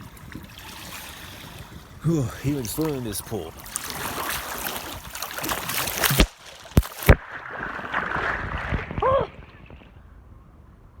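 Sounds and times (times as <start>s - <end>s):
pool water splashing: 2.1s - 9.4s.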